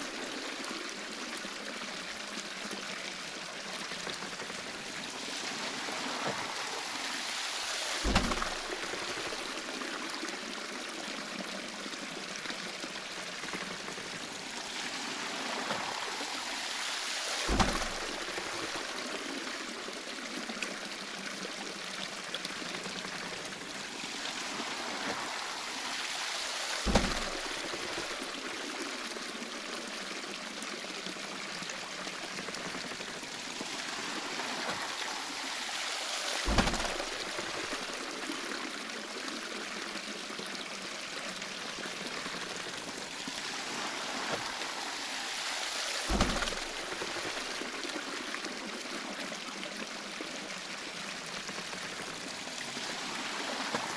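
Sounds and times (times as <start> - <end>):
water pouring and splashing: 0.0 - 53.9
dull thump: 8.0 - 9.6, 17.5 - 18.5, 26.8 - 27.9, 36.4 - 37.8, 46.1 - 47.4.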